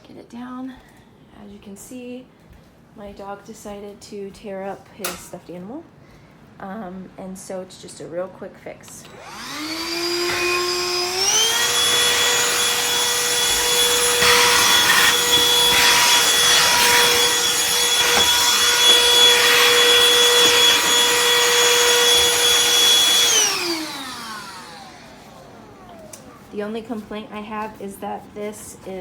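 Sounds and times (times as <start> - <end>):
handheld vacuum motor whine: 9.0 - 26.6.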